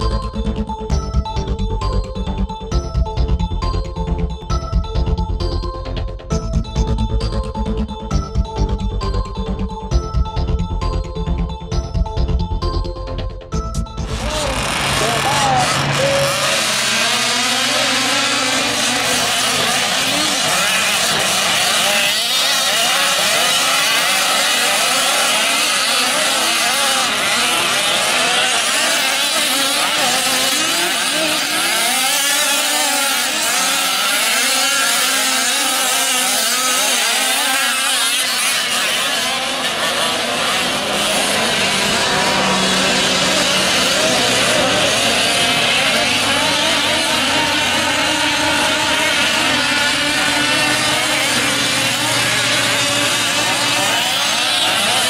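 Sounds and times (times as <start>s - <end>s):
small two-stroke engines revving: 14.0s - 55.0s.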